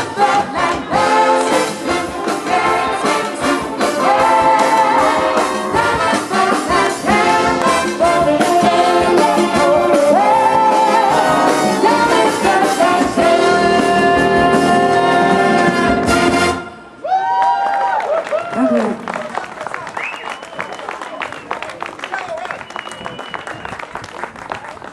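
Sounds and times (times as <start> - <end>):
big band with brass playing: 0.0 - 17.0.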